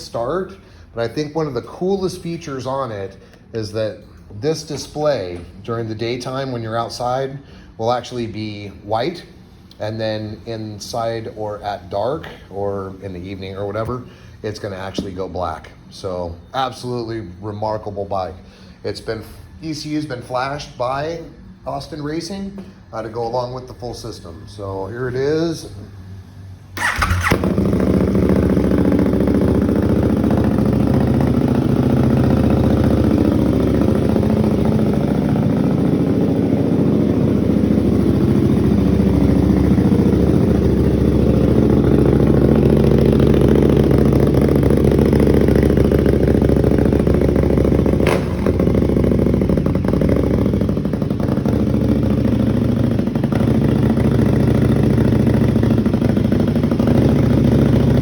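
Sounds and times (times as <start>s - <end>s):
motorcycle engine idling: 26.8s - 58.0s.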